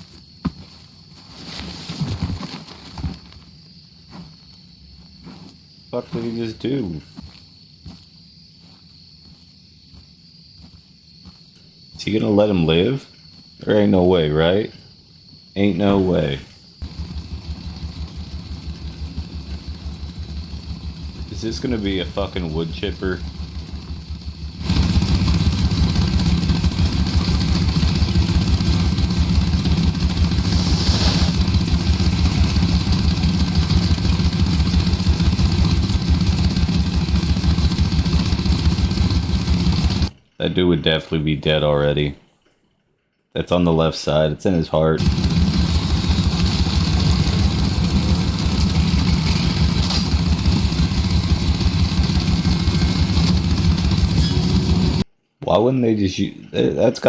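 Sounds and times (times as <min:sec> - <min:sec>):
gasoline engine running: 0:15.9 - 0:40.2, 0:45.0 - 0:55.1
brief hiss: 0:30.4 - 0:31.4.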